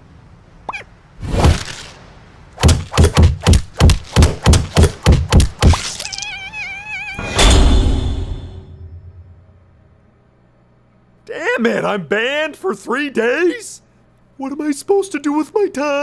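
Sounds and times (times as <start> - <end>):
cartoon club whacks: 2.6 - 6.1
cartoon squeak: 5.7 - 7.6.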